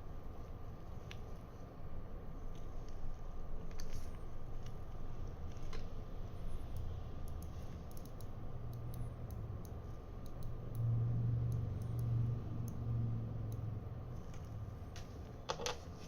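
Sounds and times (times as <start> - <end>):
low hum: 4.4 - 15.3
small parts and tools clicking: 6.7 - 10.9, 11.5 - 12.9.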